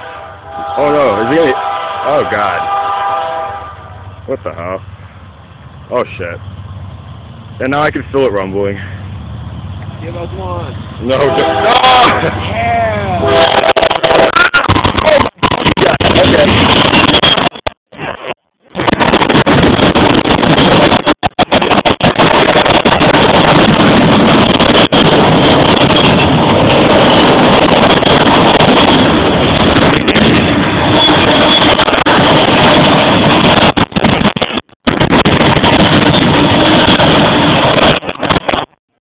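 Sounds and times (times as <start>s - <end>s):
train rumbling and clattering: 0.0s - 17.7s, 18.6s - 38.8s
wind buffeting microphone: 18.7s - 38.6s.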